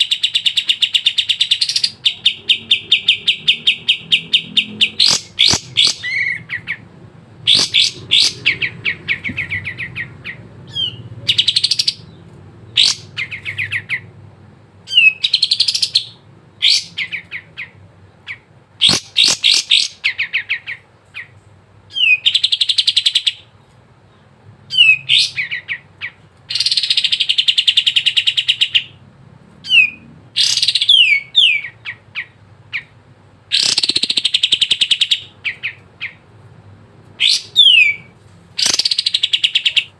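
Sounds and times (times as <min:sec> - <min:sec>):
bird singing chattering phrases: 0:00.0 - 0:14.2, 0:14.8 - 0:29.0, 0:29.6 - 0:36.4, 0:37.1 - 0:39.9.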